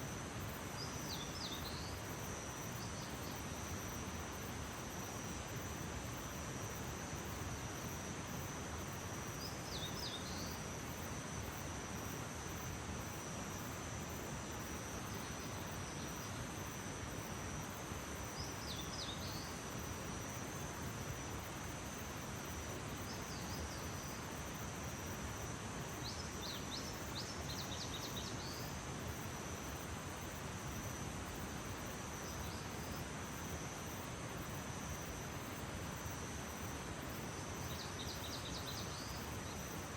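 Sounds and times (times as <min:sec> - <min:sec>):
constant hiss: 0:00.0 - 0:39.9.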